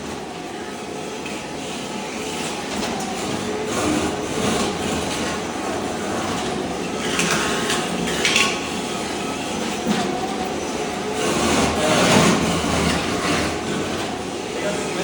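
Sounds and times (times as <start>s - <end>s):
floor scraper scraping concrete: 2.4s - 9.0s, 9.6s - 15.0s.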